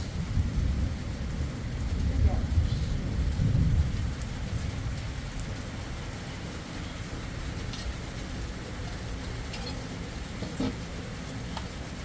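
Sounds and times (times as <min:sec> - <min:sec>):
low rumble: 0:00.0 - 0:12.0
steady rain: 0:00.0 - 0:12.0.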